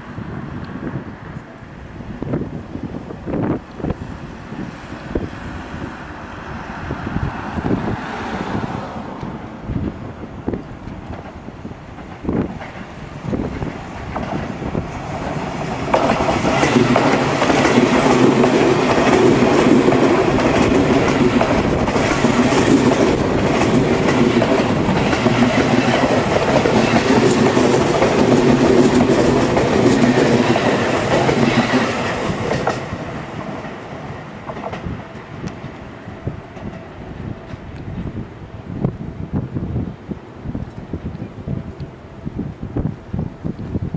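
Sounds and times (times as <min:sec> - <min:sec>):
train passing rumble: 0:00.0 - 0:43.9
train wheels clacking over rail joints: 0:10.5 - 0:35.8.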